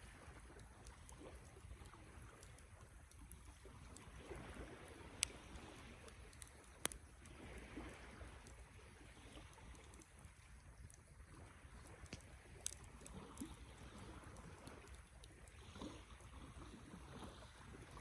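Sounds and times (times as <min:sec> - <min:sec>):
campfire crackling: 0:00.0 - 0:18.0
burning wood popping: 0:05.1 - 0:07.2, 0:11.8 - 0:13.7.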